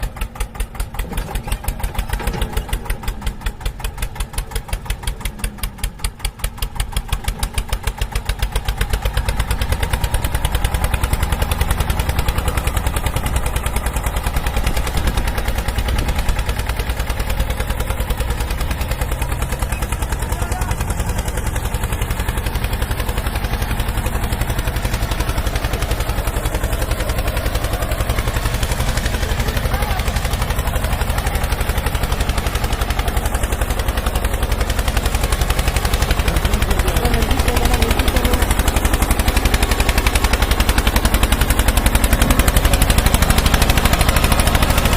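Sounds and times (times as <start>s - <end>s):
motor running with rapid pulse: 22.0s - 44.9s.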